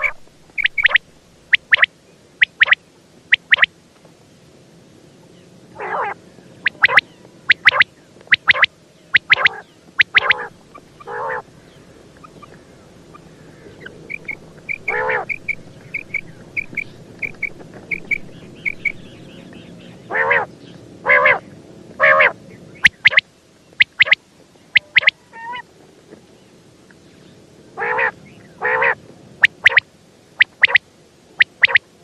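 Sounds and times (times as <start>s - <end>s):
quail calling: 0.0s - 3.7s, 5.8s - 20.5s, 21.1s - 23.2s, 23.8s - 24.2s, 24.8s - 25.6s, 27.8s - 29.8s, 30.4s - 30.8s, 31.4s - 31.8s
soft high chirps: 0.0s - 3.7s, 6.6s - 19.7s, 22.8s - 23.2s, 23.8s - 25.2s, 29.4s - 30.8s, 31.4s - 31.8s.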